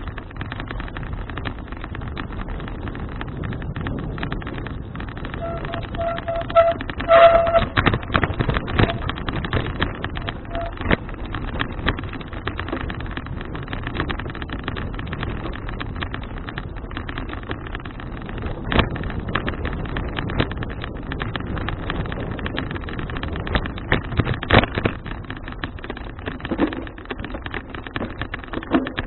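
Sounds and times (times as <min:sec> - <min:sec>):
bicycle rattles and knocks: 0:00.0 - 0:29.0
wind on camera microphone: 0:00.0 - 0:29.0
thin squeal-like tone: 0:05.4 - 0:07.8, 0:10.2 - 0:10.8.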